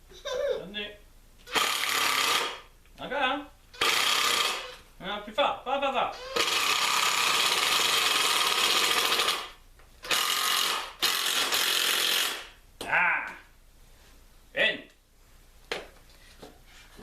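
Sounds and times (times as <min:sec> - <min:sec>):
power tool working wood: 0:03.8 - 0:04.8, 0:06.2 - 0:09.4, 0:10.1 - 0:12.4.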